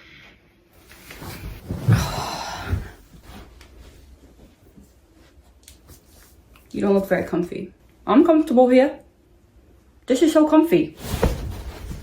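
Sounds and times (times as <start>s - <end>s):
rustling: 0.8s - 6.6s, 11.0s - 12.0s
soft thumps of sitting down: 11.0s - 12.0s.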